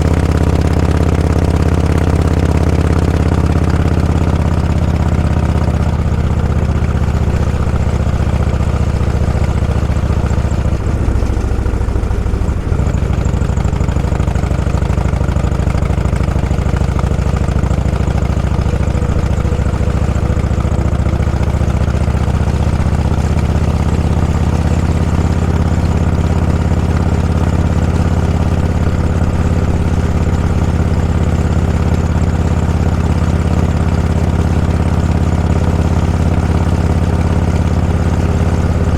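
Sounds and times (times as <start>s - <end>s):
motorcycle engine droning: 0.0s - 38.9s.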